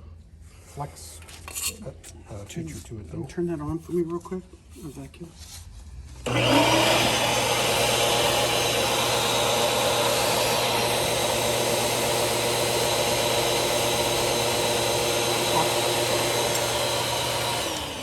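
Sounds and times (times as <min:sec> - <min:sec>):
vacuum cleaner running: 0:06.2 - 0:18.0.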